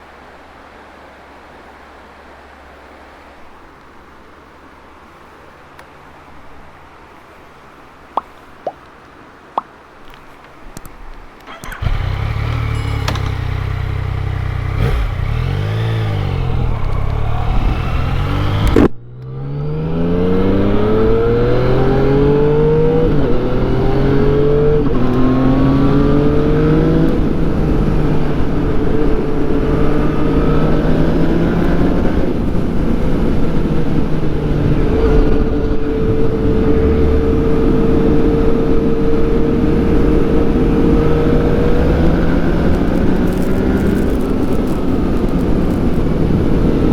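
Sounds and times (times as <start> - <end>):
motorcycle engine throttle blip: 11.5 - 15.2
motorcycle accelerating through upshifts: 11.5 - 46.9.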